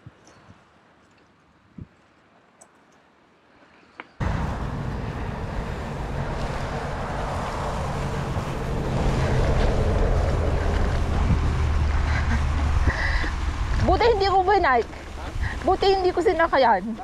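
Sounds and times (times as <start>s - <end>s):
wind buffeting microphone: 4.2s - 17.0s.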